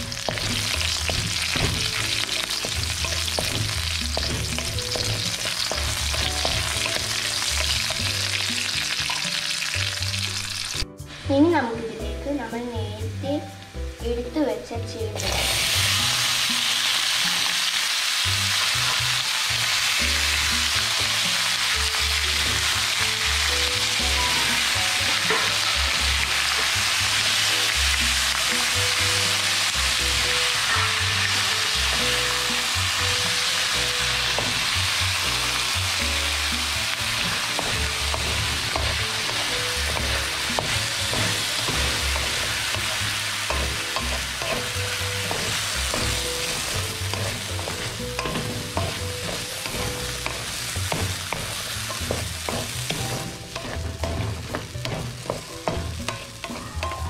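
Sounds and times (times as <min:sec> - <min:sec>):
food sizzling in hot oil: 0:00.0 - 0:11.6, 0:12.2 - 0:57.0
wooden spatula scraping a pan: 0:37.1 - 0:57.0.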